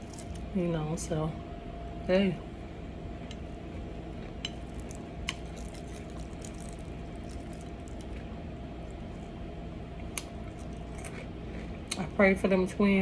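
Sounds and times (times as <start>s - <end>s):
person chewing food: 0.0s - 0.5s, 3.2s - 12.0s
steady low hum: 0.0s - 13.0s.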